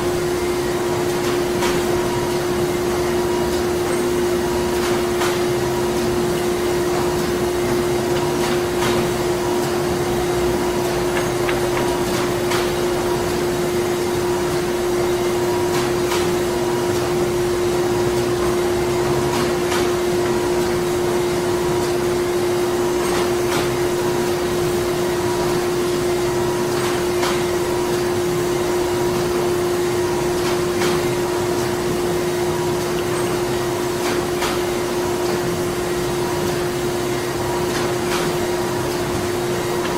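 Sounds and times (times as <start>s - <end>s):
factory machinery humming: 0.0s - 39.9s
faint clicks and knocks: 7.7s - 13.0s.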